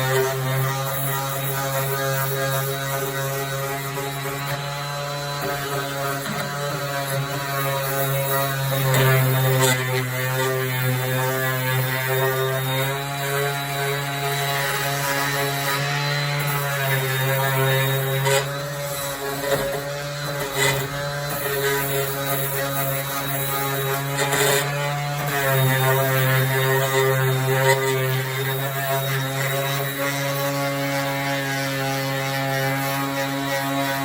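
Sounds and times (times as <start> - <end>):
electric sander droning hum: 0.0 - 34.0.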